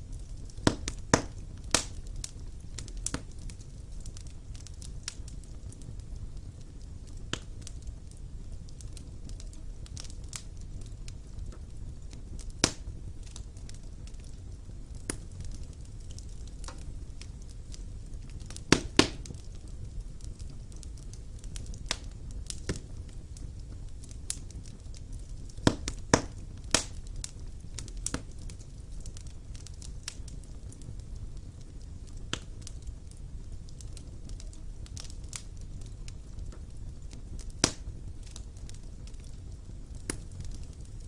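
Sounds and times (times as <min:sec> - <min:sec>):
fire crackling and popping: 0:00.0 - 0:41.0
fire rumbling: 0:00.0 - 0:41.0.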